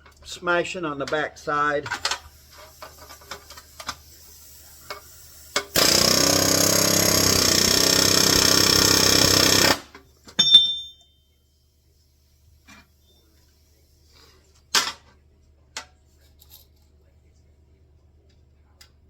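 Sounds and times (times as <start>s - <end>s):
air hammer hammering rivet: 5.6s - 10.6s
ringing metallic clank: 10.4s - 11.3s.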